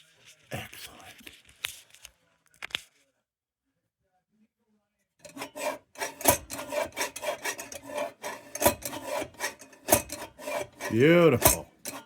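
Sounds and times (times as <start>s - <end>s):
metal scraping and rubbing: 5.2s - 12.0s.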